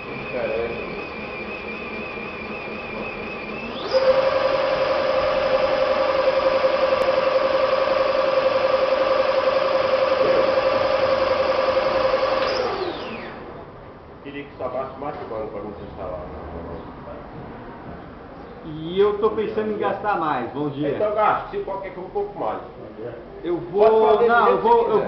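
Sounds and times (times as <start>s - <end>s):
electric motor whining: 0.0s - 13.5s.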